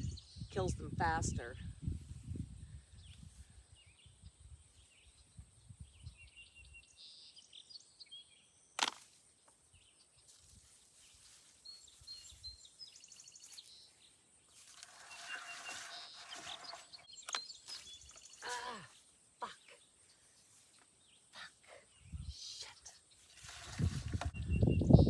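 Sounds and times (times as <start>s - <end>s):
birds chirping: 9.4s - 25.0s.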